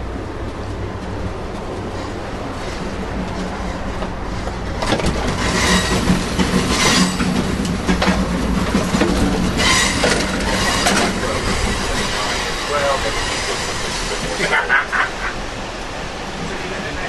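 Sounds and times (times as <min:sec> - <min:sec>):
train wheels rumbling on rail: 0:00.0 - 0:17.0
rattles and clanks: 0:01.8 - 0:14.8.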